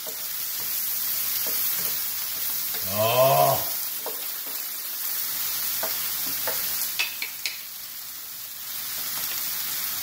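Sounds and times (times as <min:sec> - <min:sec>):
food sizzling in frying pans: 0:00.0 - 0:10.0
wooden spatula knocking a pan: 0:05.7 - 0:07.6.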